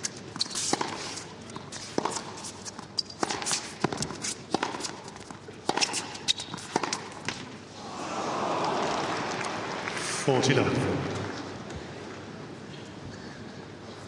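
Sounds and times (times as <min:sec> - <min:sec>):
tennis ball struck by rackets: 0:05.6 - 0:07.5.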